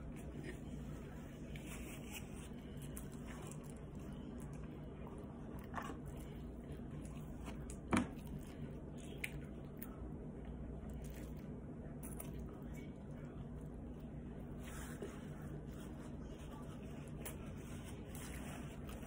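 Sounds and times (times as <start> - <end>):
person chewing food: 0.0 - 13.7
steady low hum: 0.0 - 19.0.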